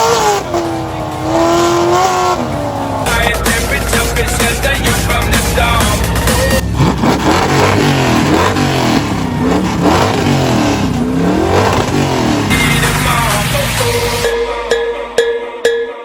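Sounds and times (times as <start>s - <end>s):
car engine revving: 0.0s - 15.1s
music: 3.0s - 6.9s, 12.5s - 16.0s.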